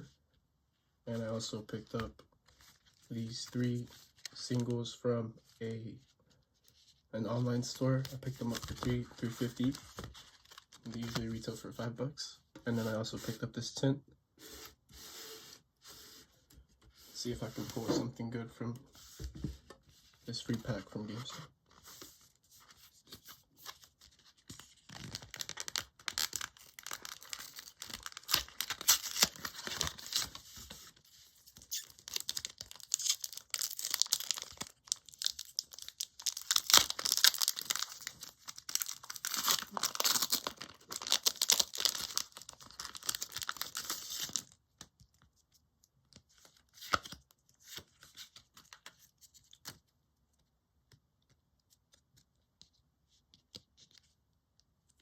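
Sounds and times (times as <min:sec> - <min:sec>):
foil wrapper crinkling and tearing: 0:24.9 - 0:30.4, 0:31.6 - 0:44.6.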